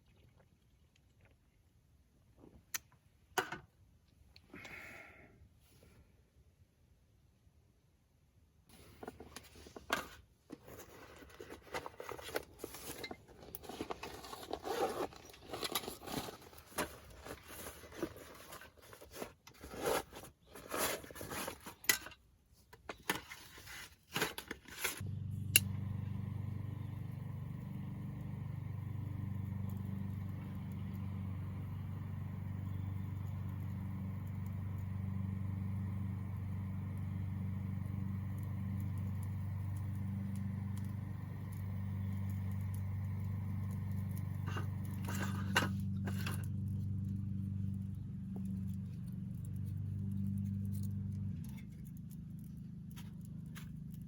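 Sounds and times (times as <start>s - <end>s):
scraping and rustling of handling: 8.7s - 52.2s
steady low hum: 25.0s - 54.0s
scattered clicks: 25.1s - 45.1s.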